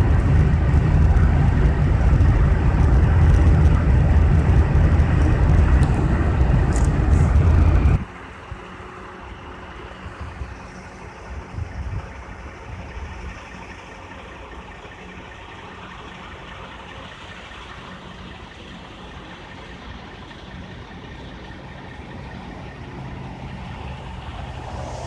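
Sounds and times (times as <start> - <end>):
low thumps: 0.0 - 8.0
tyre and road noise: 0.0 - 9.2, 20.6 - 25.0
engine hum: 0.0 - 25.0.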